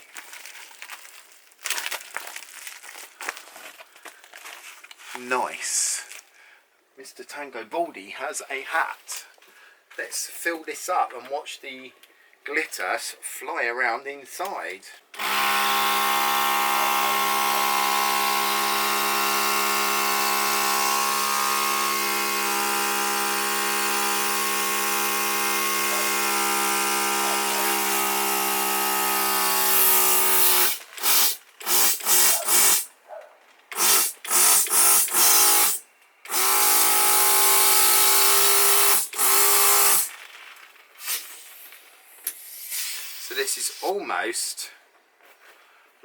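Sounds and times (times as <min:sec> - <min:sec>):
electric balloon pump running: 0:15.1 - 0:32.9, 0:33.7 - 0:40.2, 0:41.0 - 0:43.8.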